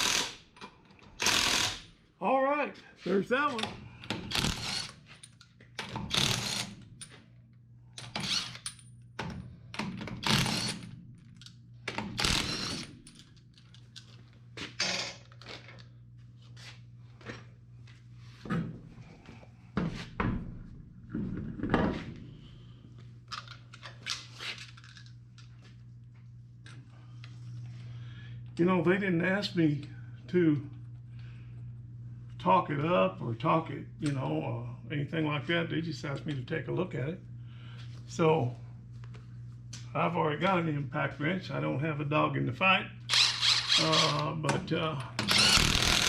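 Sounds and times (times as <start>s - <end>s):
impact wrench: 0.0s - 0.5s, 1.1s - 1.9s, 4.1s - 5.0s, 5.8s - 6.8s, 8.0s - 8.7s, 9.8s - 10.9s, 11.9s - 13.0s, 43.1s - 44.2s, 45.2s - 46.0s
steady low hum: 0.0s - 46.0s.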